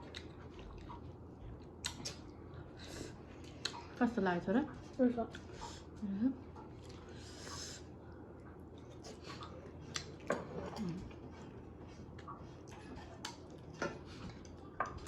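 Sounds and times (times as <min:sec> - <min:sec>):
person chewing crunchily: 0:00.0 - 0:02.3, 0:08.7 - 0:14.7.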